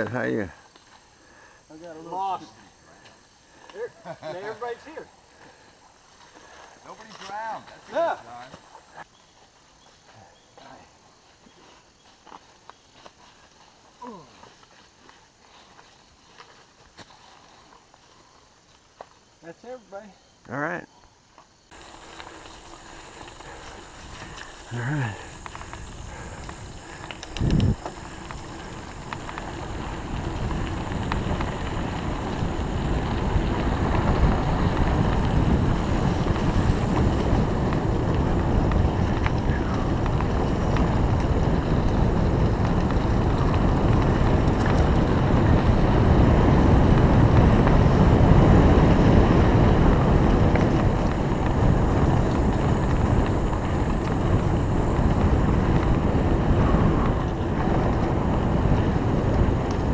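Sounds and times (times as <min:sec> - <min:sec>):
wind rushing over microphone: 0:21.7 - 0:59.9.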